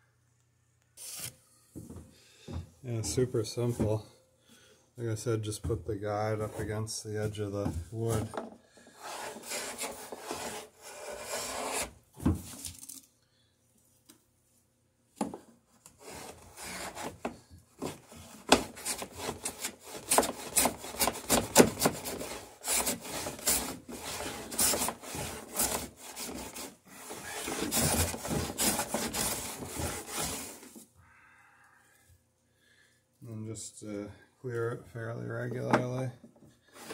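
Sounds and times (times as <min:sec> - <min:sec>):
blade shaving wood: 0:08.9 - 0:12.0, 0:16.0 - 0:30.8.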